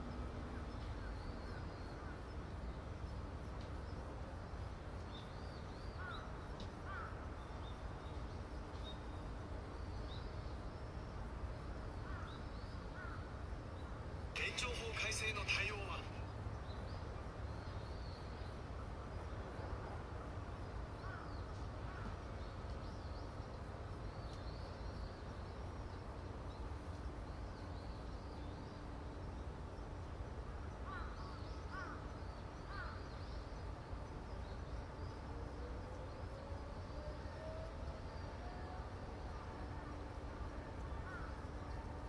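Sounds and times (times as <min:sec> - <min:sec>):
crows cawing: 0:06.8 - 0:07.2, 0:30.8 - 0:32.0, 0:32.7 - 0:33.0.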